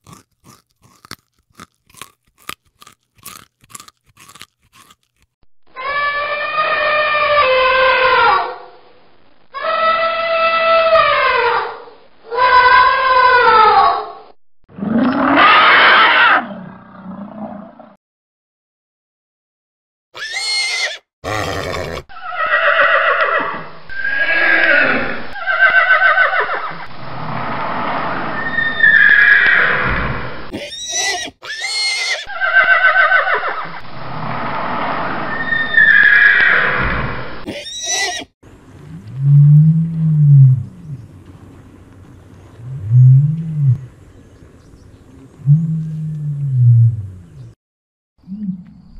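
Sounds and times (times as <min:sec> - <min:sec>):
horses neighing and whinnying: 0:20.2 - 0:26.8, 0:28.6 - 0:33.8, 0:35.4 - 0:44.0.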